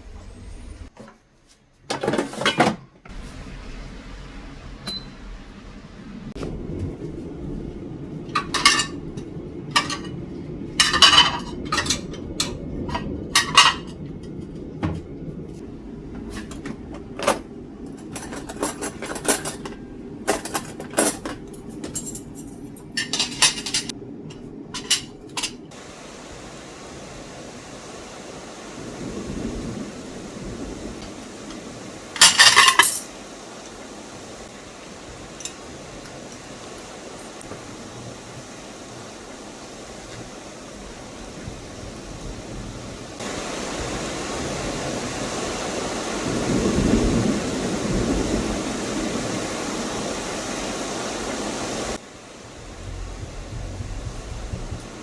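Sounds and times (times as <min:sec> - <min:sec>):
dishes clattering: 0:01.9 - 0:02.9, 0:08.4 - 0:09.0, 0:09.7 - 0:10.2, 0:10.8 - 0:15.0, 0:17.2 - 0:23.9, 0:32.2 - 0:33.1
low steady hum: 0:01.9 - 0:44.7, 0:52.0 - 0:55.0
dishes and cutlery clinking: 0:10.8 - 0:15.0, 0:18.0 - 0:23.9, 0:32.2 - 0:33.1.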